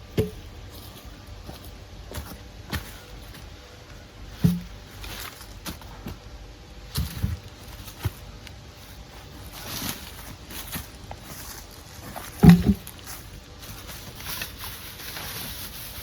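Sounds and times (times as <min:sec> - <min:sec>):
footsteps outdoors: 0:00.0 - 0:16.0
sharp knocks and thuds: 0:04.4 - 0:04.8, 0:12.3 - 0:12.9.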